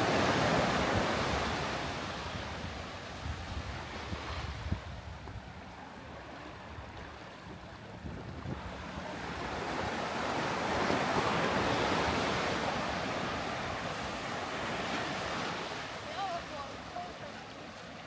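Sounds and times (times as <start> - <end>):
sea surf washing onto beach: 0.0 - 3.2, 8.8 - 18.0
wind rumble on microphone: 0.0 - 14.0.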